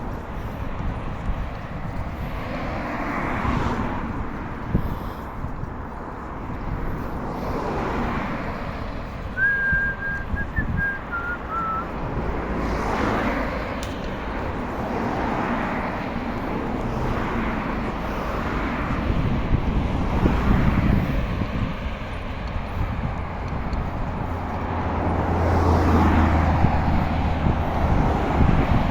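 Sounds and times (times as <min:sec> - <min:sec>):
road traffic: 0:00.0 - 0:28.9
wind rush: 0:00.0 - 0:28.9
person whistling: 0:09.4 - 0:11.9.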